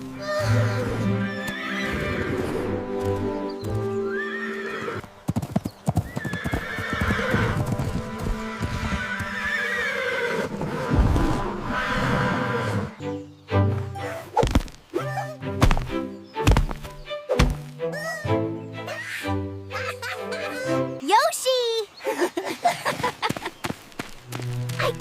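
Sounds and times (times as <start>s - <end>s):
hoofbeats: 0.0s - 11.2s, 13.6s - 18.1s, 22.8s - 25.0s
background music: 0.0s - 22.6s, 24.2s - 25.0s
horse whinnying: 0.4s - 2.8s, 4.0s - 5.0s, 6.0s - 7.6s, 8.6s - 13.0s.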